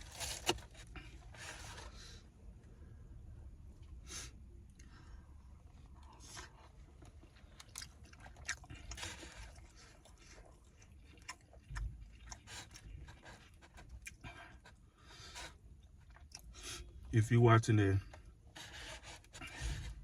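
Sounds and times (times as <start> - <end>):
person chewing food: 4.7 - 16.9.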